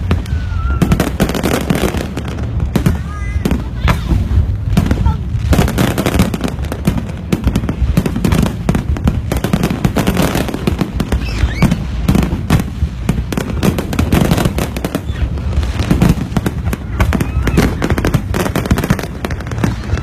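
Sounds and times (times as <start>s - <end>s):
deep rumble: 0.0s - 20.0s
fireworks bangs and crackles: 0.0s - 20.0s.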